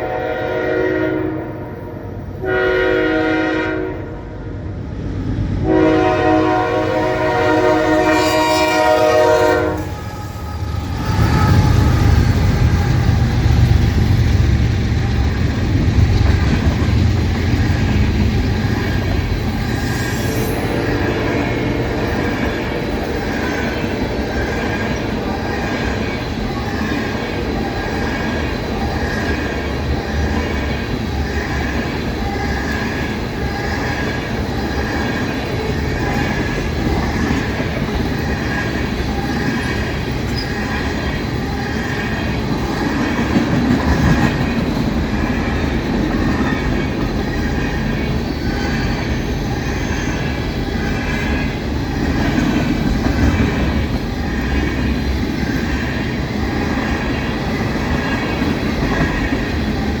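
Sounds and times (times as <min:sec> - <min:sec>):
train wheels rumbling on rails: 0:00.0 - 1:00.0
high wheel squeal: 0:07.8 - 0:16.0, 0:17.3 - 0:43.2, 0:44.0 - 0:52.4.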